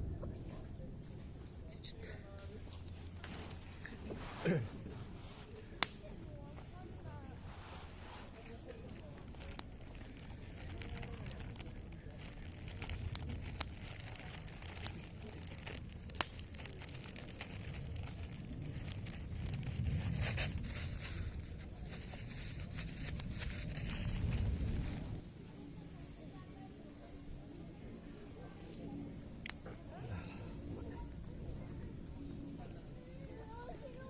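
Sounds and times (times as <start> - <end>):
low rumbling noise: 0.0 - 34.0
wood fire crackling: 1.0 - 26.3.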